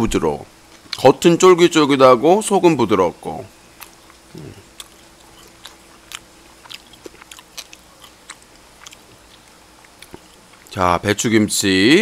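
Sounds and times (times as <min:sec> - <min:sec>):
person chewing meat: 0:03.7 - 0:10.8.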